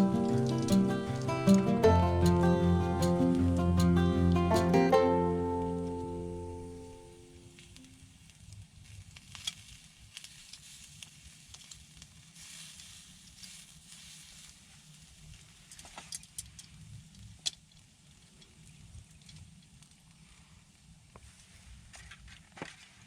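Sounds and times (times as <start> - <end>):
campfire crackling and popping: 0.0 - 8.4
light hiss: 0.0 - 21.5.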